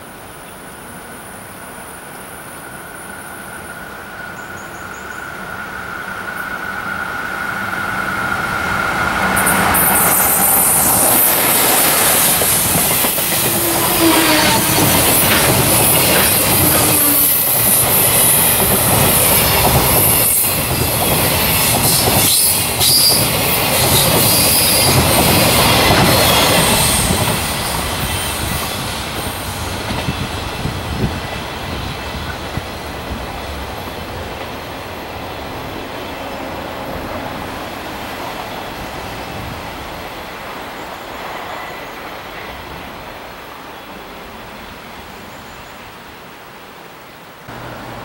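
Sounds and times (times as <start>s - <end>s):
high hissing wheel squeal: 2.8s - 12.7s, 13.5s - 14.9s, 16.1s - 18.4s, 21.4s - 23.3s, 24.2s - 25.0s
freight train wheels clattering: 8.8s - 34.6s.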